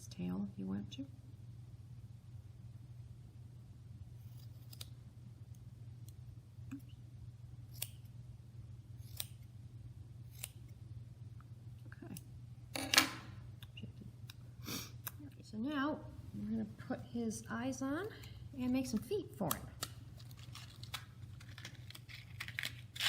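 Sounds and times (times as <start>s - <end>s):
steady low hum: 0.0s - 23.0s
scissors scrape: 4.2s - 4.9s, 9.0s - 9.4s
scissors snipping yarn: 7.7s - 8.1s.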